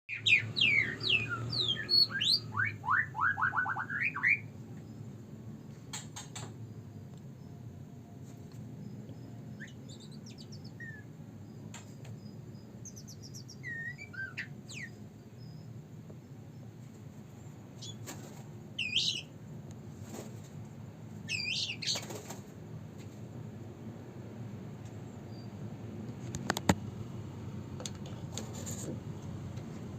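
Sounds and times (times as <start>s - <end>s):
songbird whistling and trilling: 0.1s - 5.0s, 9.1s - 11.1s, 12.2s - 15.7s, 17.8s - 18.0s, 18.8s - 19.3s, 21.3s - 22.0s.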